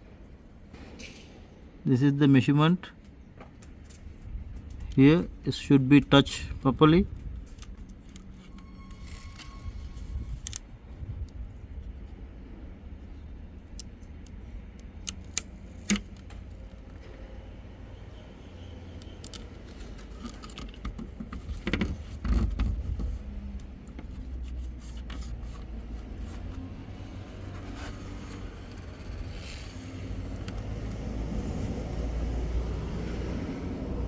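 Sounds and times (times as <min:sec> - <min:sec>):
plastic scrapes and clicks: 0:19.0 - 0:31.1.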